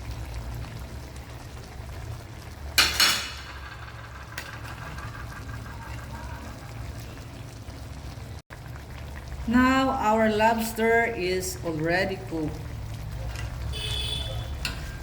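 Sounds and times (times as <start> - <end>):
utensil stirring food in a pan: 2.7 - 7.2, 12.8 - 15.0
metal clatters against pan: 2.8 - 6.4, 14.6 - 15.0.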